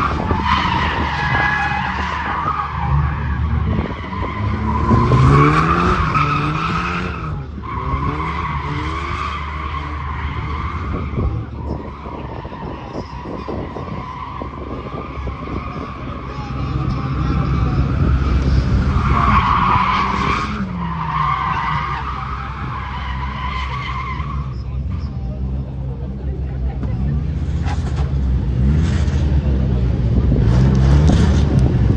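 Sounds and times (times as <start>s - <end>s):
car engine revving hard: 0.0s - 13.6s, 26.8s - 31.9s.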